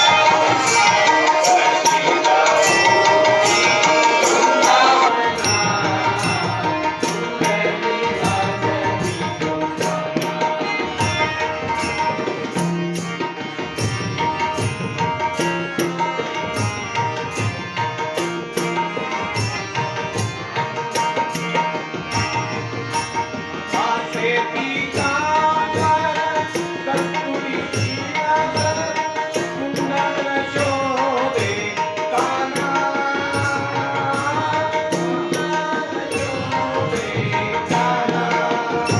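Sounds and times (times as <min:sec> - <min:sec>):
person singing: 0:00.0 - 0:11.8, 0:23.7 - 0:38.9
sustained melodic tones: 0:00.0 - 0:30.3.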